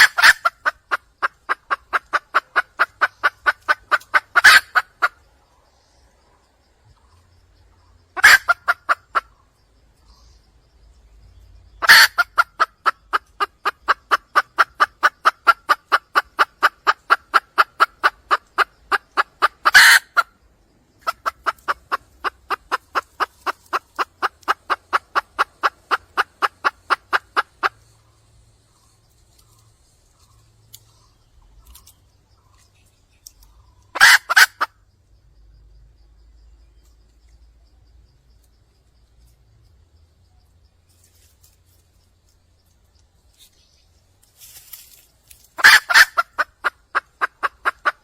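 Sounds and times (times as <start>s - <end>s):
hen clucking rapidly: 0.0s - 5.6s, 6.9s - 10.2s, 11.7s - 34.9s, 45.5s - 48.0s.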